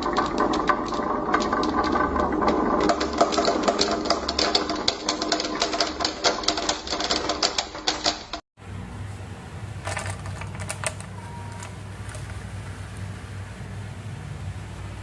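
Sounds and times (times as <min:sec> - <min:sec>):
marbles rolling down track: 0:00.0 - 0:08.4, 0:09.8 - 0:12.4.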